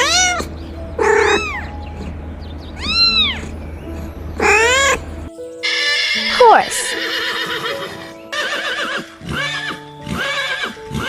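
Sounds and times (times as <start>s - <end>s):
cat meowing: 0.0s - 1.7s, 2.8s - 3.5s, 4.4s - 5.0s
kitten meowing: 0.0s - 1.7s, 2.8s - 3.5s, 4.4s - 5.0s.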